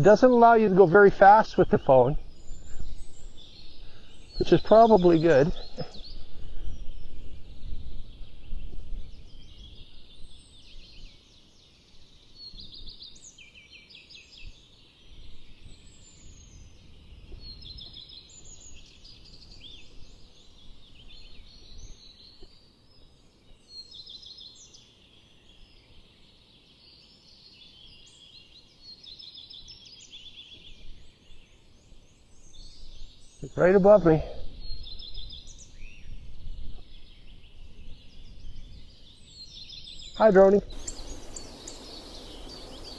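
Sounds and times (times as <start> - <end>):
songbirds singing trilled phrases: 0.0 - 42.9
wind rumble on microphone: 5.7 - 11.1, 15.1 - 21.9, 34.4 - 39.0, 40.7 - 42.9.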